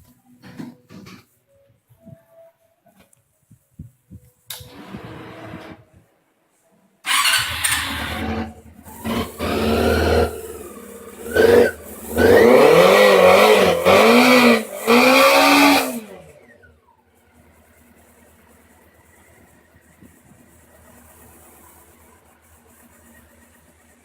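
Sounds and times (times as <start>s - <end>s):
motorcycle engine revving: 7.1s - 24.0s.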